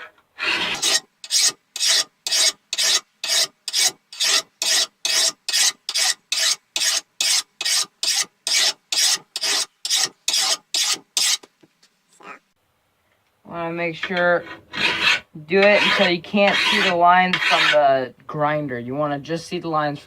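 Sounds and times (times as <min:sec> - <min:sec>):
file rasping on steel blade: 0:00.0 - 0:11.5, 0:14.0 - 0:17.8.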